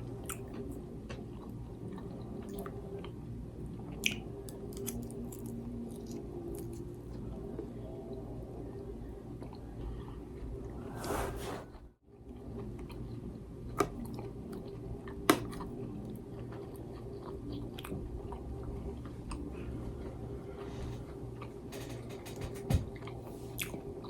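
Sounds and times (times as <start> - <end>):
chewing food: 0.2 - 7.3, 12.3 - 19.7, 23.0 - 23.9.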